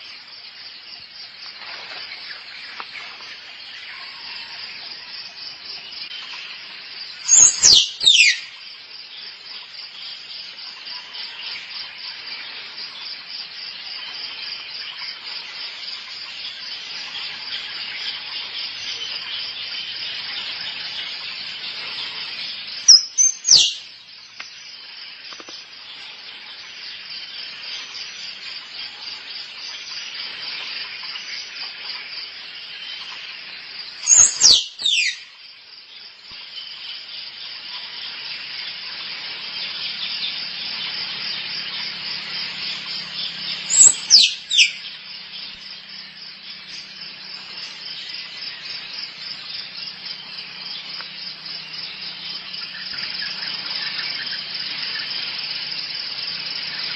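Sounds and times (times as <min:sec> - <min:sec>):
pulsing insect chorus: 0:00.0 - 0:56.9
squirrel squealing: 0:07.3 - 0:08.4, 0:34.1 - 0:35.2, 0:43.7 - 0:44.6.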